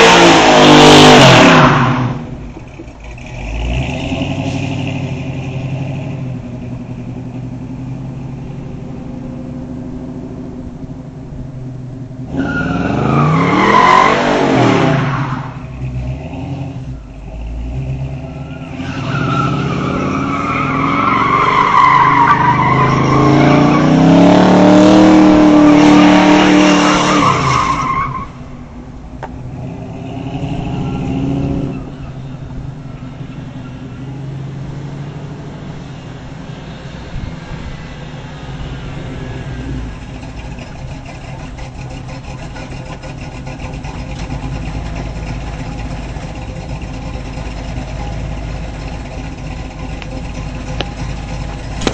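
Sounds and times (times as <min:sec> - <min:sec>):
car engine revving: 0:00.0 - 0:51.9
car engine idling: 0:02.0 - 0:03.9, 0:04.8 - 0:12.3, 0:15.5 - 0:18.6, 0:37.2 - 0:51.9
loud high squeal: 0:18.2 - 0:23.9.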